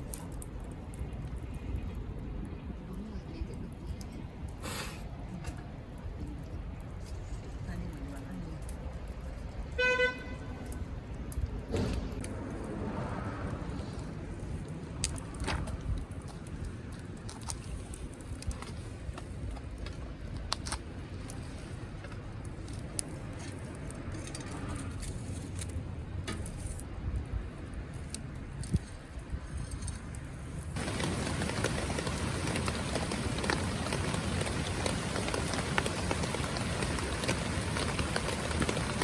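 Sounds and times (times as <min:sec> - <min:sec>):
campfire crackling and popping: 0:00.0 - 0:09.8, 0:10.5 - 0:24.6, 0:30.1 - 0:39.0
dense hiss: 0:04.6 - 0:05.1.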